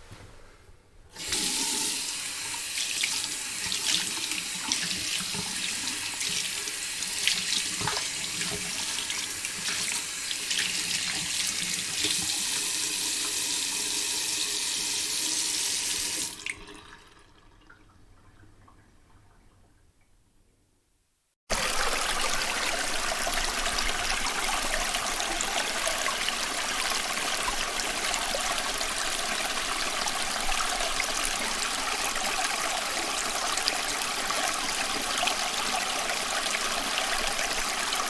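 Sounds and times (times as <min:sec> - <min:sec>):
tap water running: 0:01.2 - 0:18.8, 0:21.5 - 0:38.0
faint water trickle: 0:16.4 - 0:20.6.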